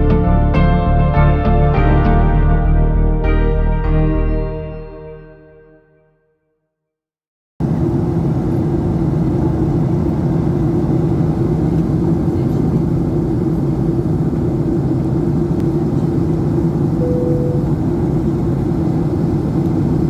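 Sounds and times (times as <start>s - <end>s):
airplane cabin drone: 7.6s - 20.0s.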